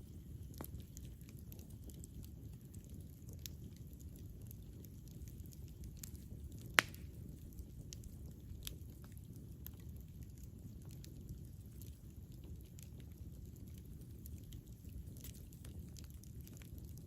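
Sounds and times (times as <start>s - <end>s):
campfire rumble: 0.0s - 17.0s
wood crackling: 0.4s - 13.2s.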